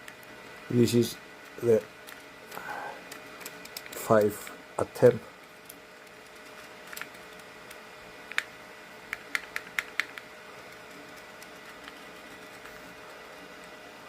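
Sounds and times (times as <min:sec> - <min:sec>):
faint steady hum: 0:00.0 - 0:14.0
plastic pieces clicking together: 0:02.0 - 0:04.3.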